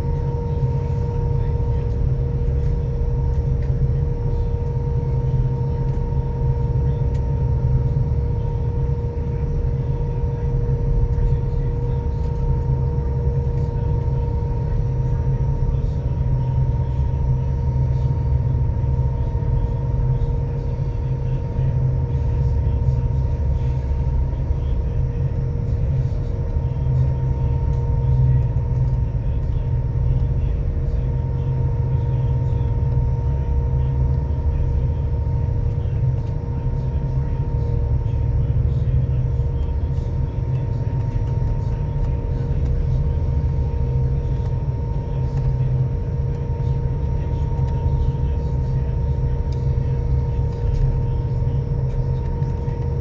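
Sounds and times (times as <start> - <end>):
ferry engines droning: 0.0 - 53.0.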